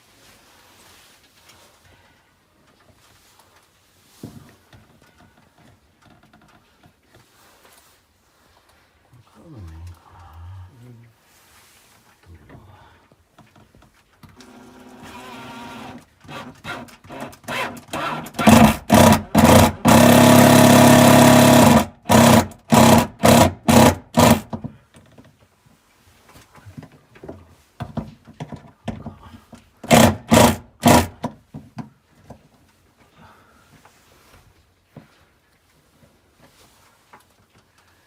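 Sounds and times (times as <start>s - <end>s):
electric power driver bursts: 18.4s - 24.4s.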